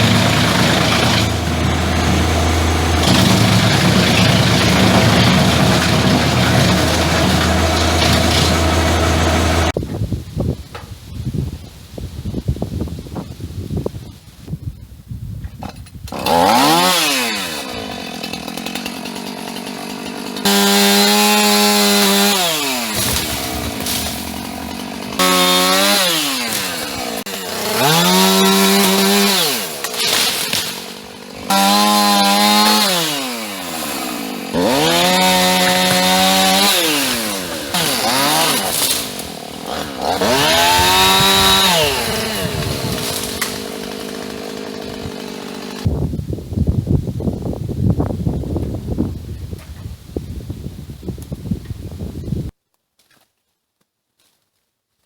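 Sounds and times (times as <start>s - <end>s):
chainsaw revving and idling: 0.0s - 9.8s, 16.1s - 45.9s.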